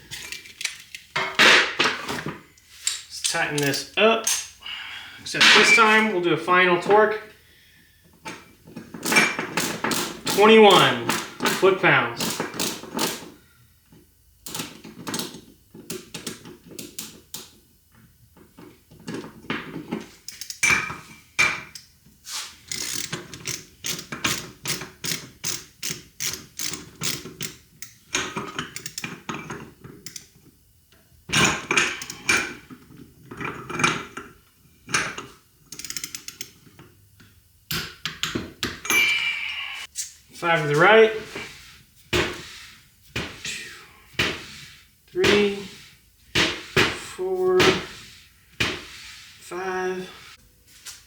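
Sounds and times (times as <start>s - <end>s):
ratchet wrench clicking: 9.0s - 11.6s, 12.2s - 13.2s, 20.2s - 20.6s, 22.7s - 29.1s, 30.0s - 30.3s, 35.7s - 36.6s.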